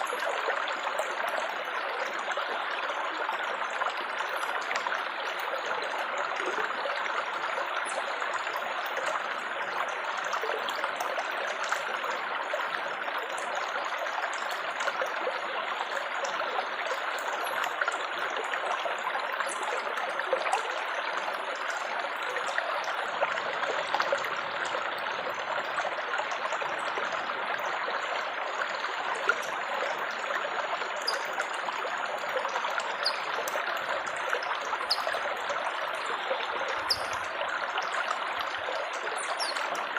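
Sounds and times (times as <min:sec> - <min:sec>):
stream trickling and babbling: 0:00.0 - 0:39.9.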